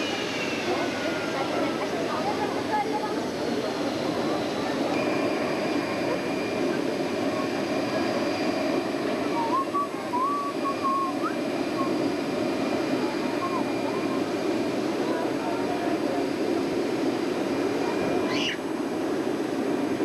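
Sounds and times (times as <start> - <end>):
high constant whine: 0.0 - 20.0
faint wavering whistle tones: 4.9 - 6.8, 7.9 - 12.3.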